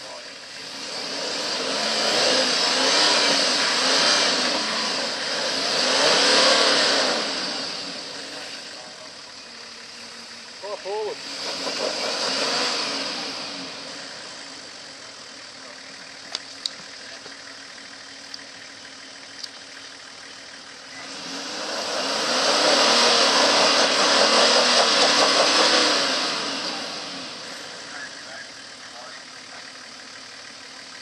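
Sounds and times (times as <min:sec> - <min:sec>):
engine idling and revving: 0:00.0 - 0:31.0
sharp clicks: 0:16.2 - 0:17.4, 0:18.2 - 0:18.5, 0:19.3 - 0:19.6.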